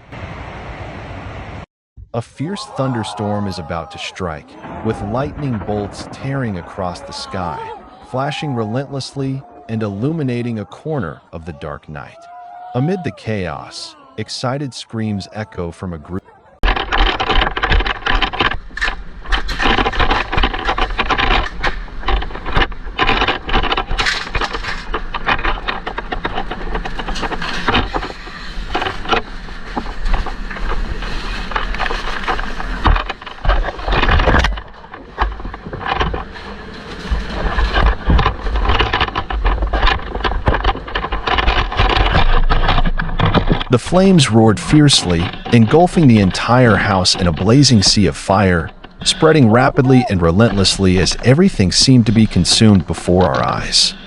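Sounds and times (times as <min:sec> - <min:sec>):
sudden noisy bursts: 0:00.0 - 0:09.8
constant low rumble: 0:00.0 - 0:12.0, 0:15.4 - 0:54.0
people shouting and screaming: 0:02.2 - 0:16.7, 0:43.7 - 0:51.3.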